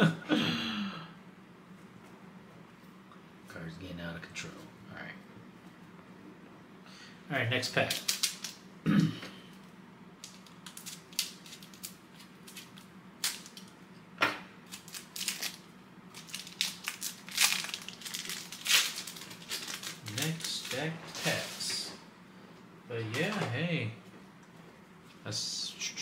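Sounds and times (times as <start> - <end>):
foil wrapper crinkling and tearing: 7.8 - 8.6, 10.2 - 13.7, 14.7 - 21.6.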